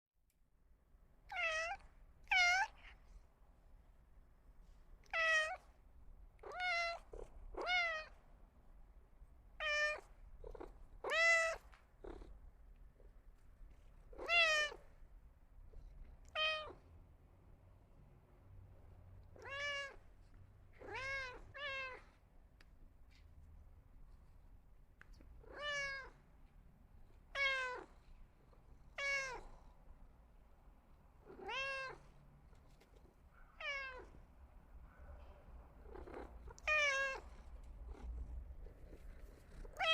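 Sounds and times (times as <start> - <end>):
cat meowing: 1.3 - 3.0, 5.0 - 5.6, 6.4 - 8.2, 9.6 - 10.2, 11.0 - 11.8, 14.1 - 14.8, 16.2 - 16.8, 19.3 - 20.0, 20.8 - 22.1, 25.4 - 26.2, 27.3 - 27.9, 29.0 - 29.6, 31.3 - 32.1, 33.6 - 34.2, 35.8 - 37.5, 39.6 - 39.9.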